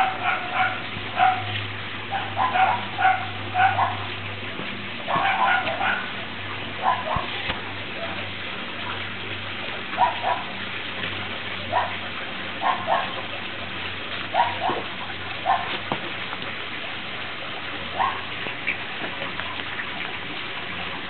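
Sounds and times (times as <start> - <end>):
puppies yipping: 0.0 - 1.5, 2.1 - 4.1, 5.1 - 6.2, 6.8 - 7.4, 10.0 - 10.5, 11.7 - 12.0, 12.6 - 13.3, 14.3 - 15.9, 17.9 - 18.4
rain falling: 0.0 - 21.0.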